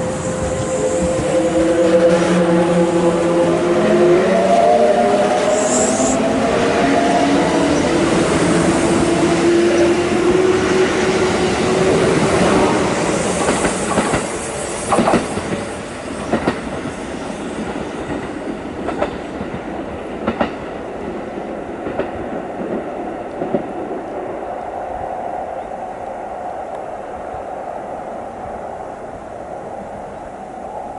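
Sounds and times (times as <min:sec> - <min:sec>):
train wheels clacking over rail joints: 0:13.3 - 0:17.0, 0:17.6 - 0:20.7.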